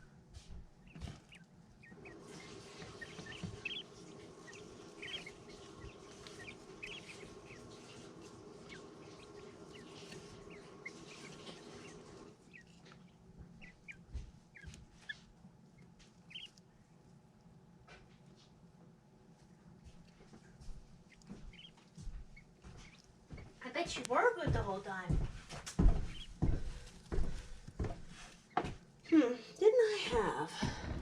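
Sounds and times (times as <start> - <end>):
steady hum: 0.0 - 17.7
chicks peeping: 0.4 - 16.7, 19.9 - 29.6.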